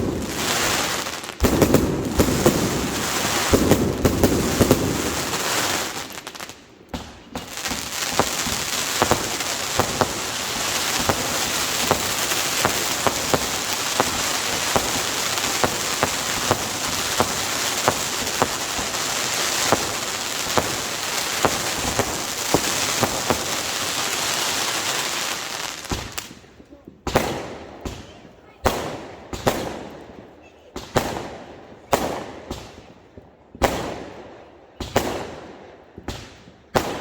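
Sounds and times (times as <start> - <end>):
fireworks crackling: 0.0 - 29.9
fireworks bangs: 0.0 - 30.1.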